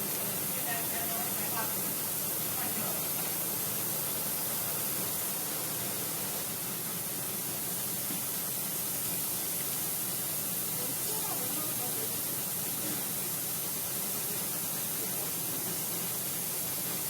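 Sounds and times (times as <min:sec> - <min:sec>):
steady high hiss: 0:00.0 - 0:17.0.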